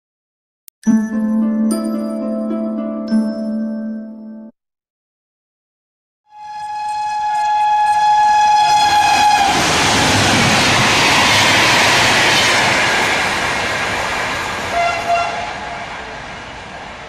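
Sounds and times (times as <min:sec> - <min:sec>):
locomotive air horn: 0:06.3 - 0:09.9, 0:14.7 - 0:15.8
train coaches rushing past: 0:06.8 - 0:17.0.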